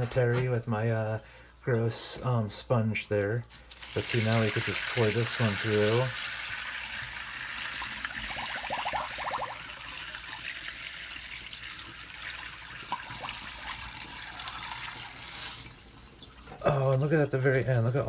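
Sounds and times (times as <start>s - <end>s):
water splashing through strainer: 3.5s - 16.6s
rising gurgle: 8.1s - 10.0s.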